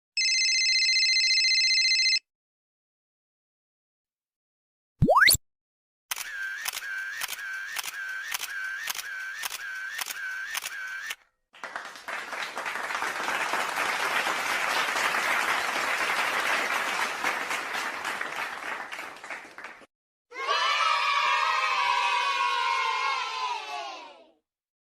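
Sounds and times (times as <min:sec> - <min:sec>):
applause: 0:11.5 - 0:19.9.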